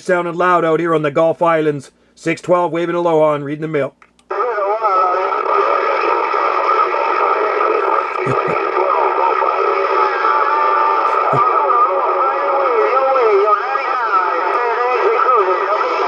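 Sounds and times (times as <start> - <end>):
radio static: 4.3 - 16.0
distant radio voices talking: 7.6 - 9.5, 11.0 - 16.0.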